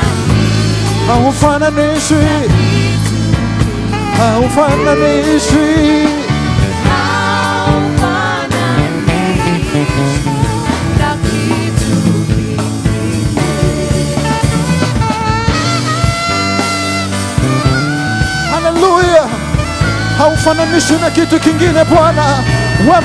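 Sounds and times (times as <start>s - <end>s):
people singing: 0.0s - 15.0s
drum kit: 0.0s - 23.0s
gospel band playing: 0.0s - 23.0s.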